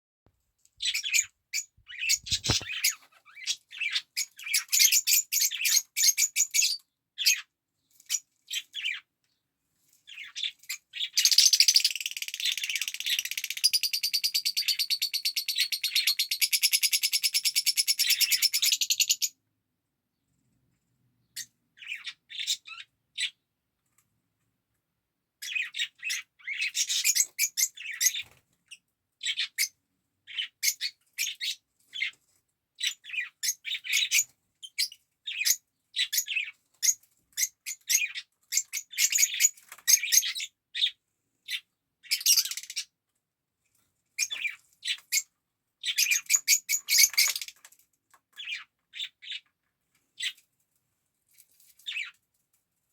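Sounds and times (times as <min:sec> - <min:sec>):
lovebird chirping: 0:00.8 - 0:07.4, 0:10.1 - 0:19.4.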